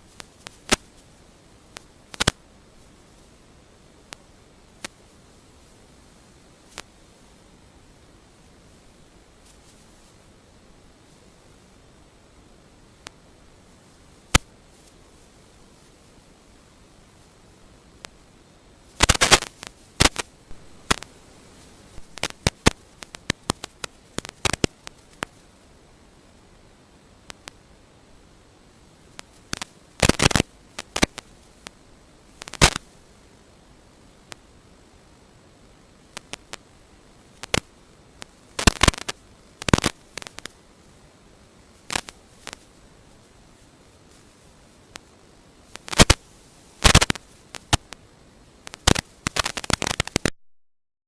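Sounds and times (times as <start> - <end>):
faint steady hiss: 0.0 - 50.3
sharp clicks and crackles: 0.1 - 1.0, 1.7 - 2.4, 4.1 - 5.1, 6.7 - 7.0, 14.3 - 15.0, 18.9 - 25.5, 27.2 - 27.7, 29.0 - 33.0, 35.9 - 40.7, 41.6 - 50.3.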